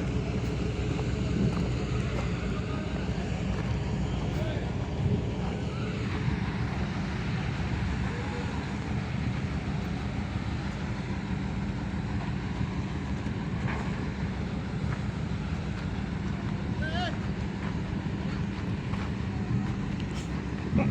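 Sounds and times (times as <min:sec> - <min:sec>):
diesel machinery engine running: 0:00.0 - 0:20.9.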